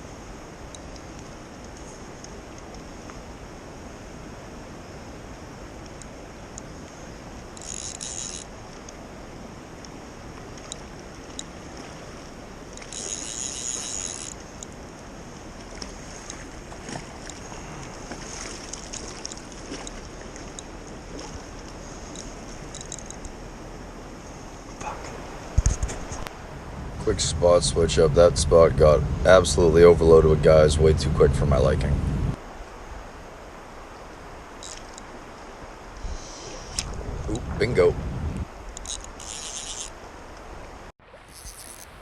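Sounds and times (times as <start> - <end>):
creek water flowing: 0.0 - 30.9, 32.4 - 42.0
faint clicks: 0.7 - 3.2, 5.8 - 9.0, 17.2 - 23.4, 34.6 - 35.1, 38.4 - 40.5
high-pitched buzzes: 12.8 - 14.4, 38.8 - 39.9, 41.3 - 42.0.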